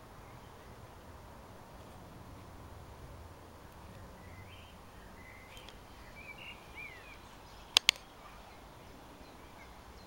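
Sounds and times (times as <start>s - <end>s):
bird chirps: 4.0s - 10.0s
sharp clicks: 5.5s - 5.8s, 7.7s - 8.1s.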